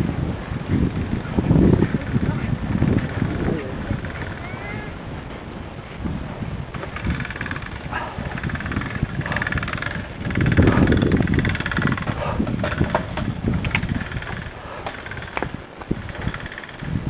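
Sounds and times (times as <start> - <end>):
low rumble of bicycles riding: 0.0 - 17.0
bicycle ticking and clicks: 1.8 - 4.8, 6.7 - 17.0.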